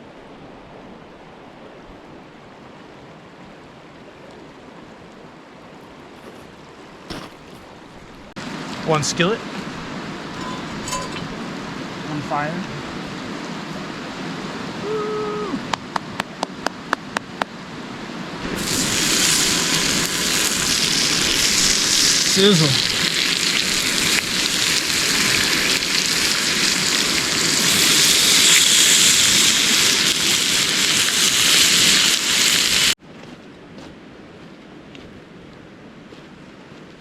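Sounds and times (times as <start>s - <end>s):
food sizzling in a skillet: 18.4s - 33.0s.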